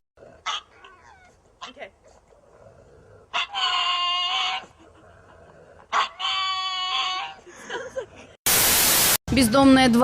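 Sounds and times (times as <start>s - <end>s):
animal giving long high calls: 3.3s - 4.8s, 5.9s - 7.5s.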